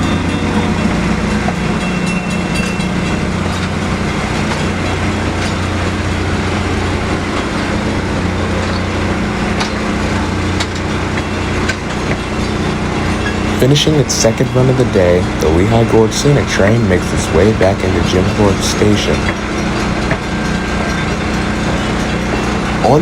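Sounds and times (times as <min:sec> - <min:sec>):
diesel locomotive engine hum: 0:00.0 - 0:23.0
train wheels clicking over rail joints: 0:00.0 - 0:23.0.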